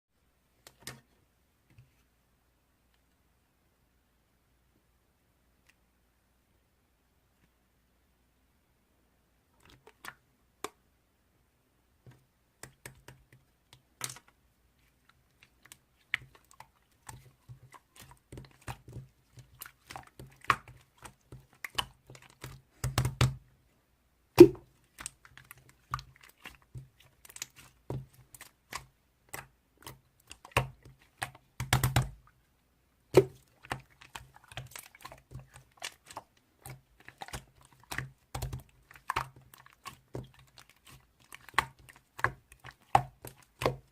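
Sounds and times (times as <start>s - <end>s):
typing clicks and taps: 31.6s - 32.1s.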